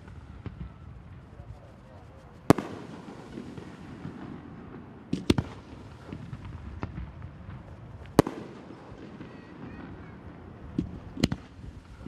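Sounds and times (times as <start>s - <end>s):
firework shells bursting with bangs: 0.0s - 12.0s.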